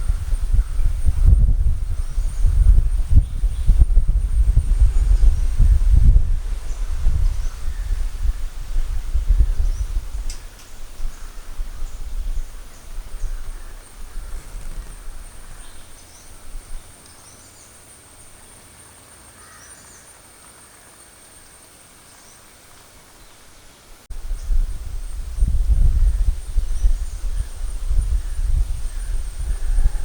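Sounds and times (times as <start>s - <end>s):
wind buffeting microphone: 0.0s - 17.0s, 24.1s - 30.0s.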